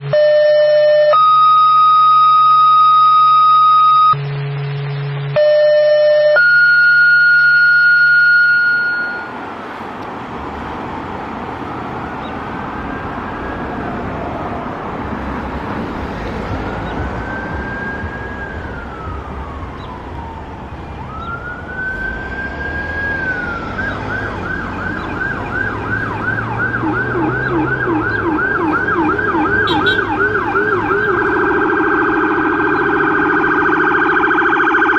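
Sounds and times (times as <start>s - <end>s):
electronic tones: 0.0s - 9.4s, 23.2s - 34.9s
lower siren yelping: 0.0s - 9.4s, 11.5s - 34.9s
sirens wailing and yelping: 0.0s - 34.9s.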